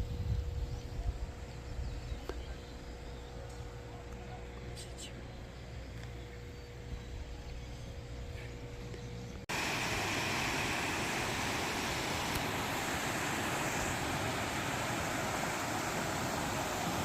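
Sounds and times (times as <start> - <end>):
stream rushing over rocks: 9.5 - 17.0.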